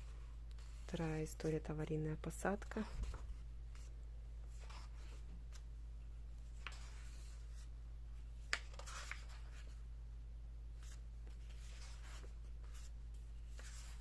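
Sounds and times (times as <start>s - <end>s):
low electrical hum: 0.0s - 14.0s
book pages turning: 4.5s - 5.7s, 6.6s - 7.7s, 8.4s - 9.8s, 10.8s - 14.0s.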